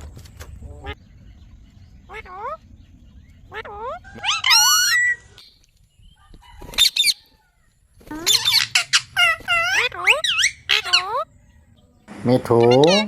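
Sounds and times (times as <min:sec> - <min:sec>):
parrot high-pitched calls: 0:02.1 - 0:02.7, 0:03.5 - 0:05.5, 0:06.8 - 0:07.3, 0:08.1 - 0:11.3, 0:12.6 - 0:13.0.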